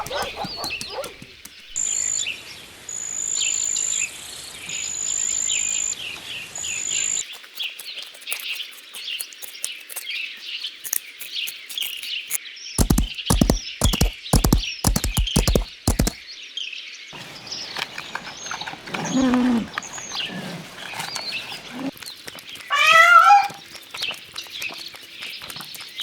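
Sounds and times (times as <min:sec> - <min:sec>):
small birds chirping: 0:00.0 - 0:02.2, 0:06.7 - 0:16.2, 0:17.2 - 0:26.0
cat meowing: 0:22.7 - 0:23.6.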